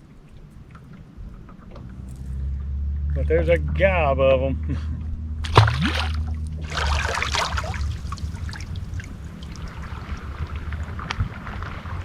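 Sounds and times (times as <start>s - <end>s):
water splashing and trickling: 5.4s - 11.0s.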